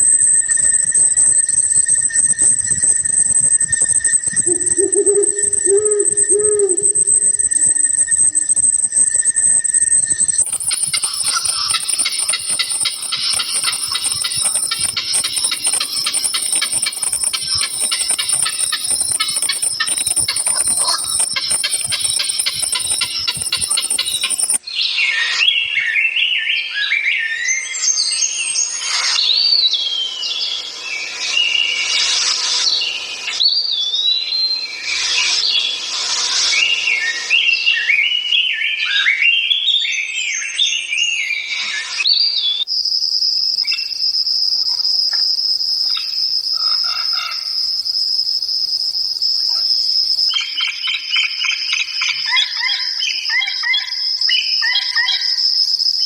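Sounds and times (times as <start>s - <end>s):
high-pitched insect call: 0.0s - 25.4s, 27.7s - 56.0s
songbirds singing: 0.0s - 28.3s, 49.0s - 56.0s.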